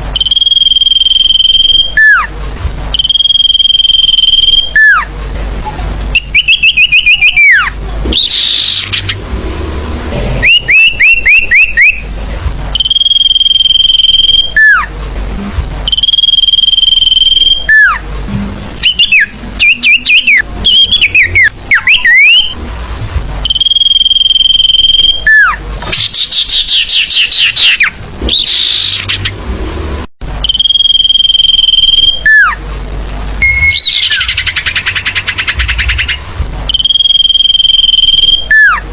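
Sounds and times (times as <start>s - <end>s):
bird song whistles and chirps: 0.2s - 2.3s, 2.9s - 5.1s, 6.1s - 9.2s, 10.4s - 12.1s, 12.8s - 14.9s, 15.9s - 18.0s, 18.8s - 22.6s, 23.4s - 29.3s, 30.4s - 32.6s, 33.4s - 38.8s.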